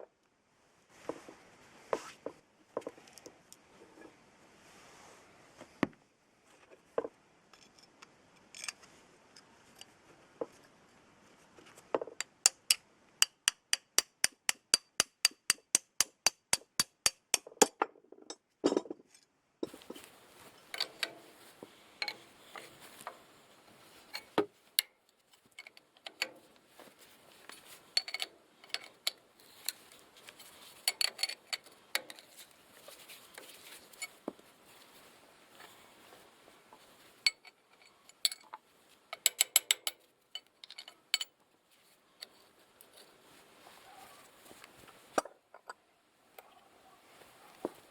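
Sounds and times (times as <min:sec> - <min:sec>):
metal parts clinking and knocking: 0:19.6 - 0:34.3, 0:37.2 - 0:41.4.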